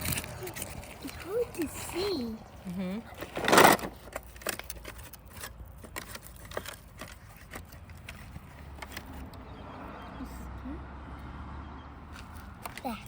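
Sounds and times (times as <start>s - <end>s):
light clicks and scrapes: 0.0s - 2.3s, 3.2s - 9.4s.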